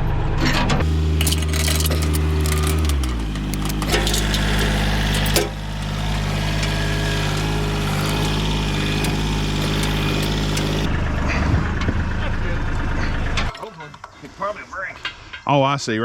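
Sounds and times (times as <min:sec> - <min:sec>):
metallic clanks: 0:00.8 - 0:10.9
tractor engine running: 0:00.8 - 0:13.5.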